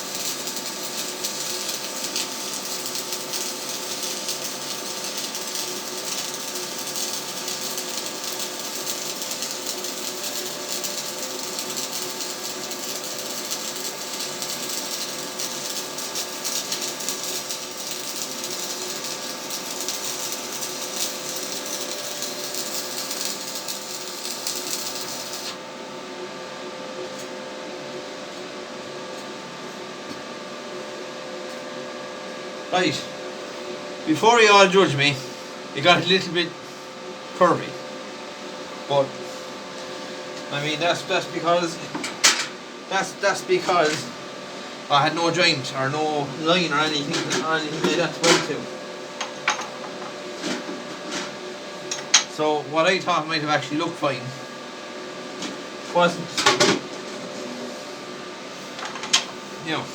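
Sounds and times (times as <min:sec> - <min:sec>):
welding arc crackling: 0:00.0 - 0:25.6
welding machine hum: 0:00.0 - 0:26.1, 0:35.8 - 0:57.1.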